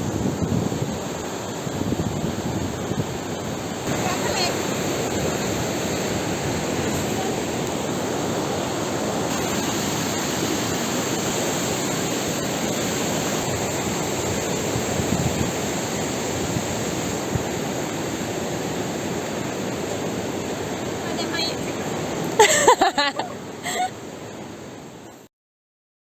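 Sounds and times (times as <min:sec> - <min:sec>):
fast-flowing water rushing: 0:00.0 - 0:25.2.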